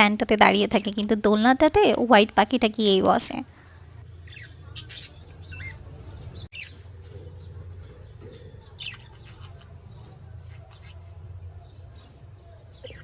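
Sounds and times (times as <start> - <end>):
budgerigars chirping: 4.2 - 6.8, 8.2 - 11.1.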